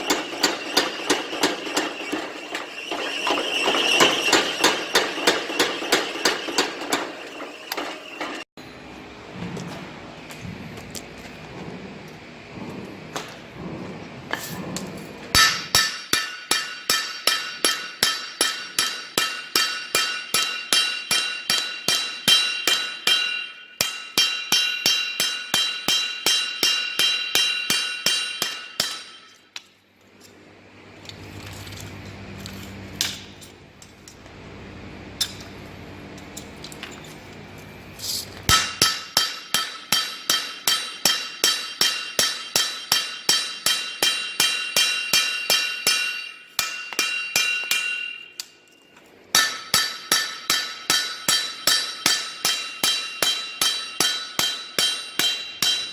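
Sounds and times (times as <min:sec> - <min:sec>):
hammer striking steel on anvil: 0:00.0 - 0:08.7, 0:13.1 - 0:29.7, 0:33.0 - 0:34.2, 0:35.2 - 0:35.6, 0:38.4 - 0:55.9
low hum: 0:07.2 - 0:15.7.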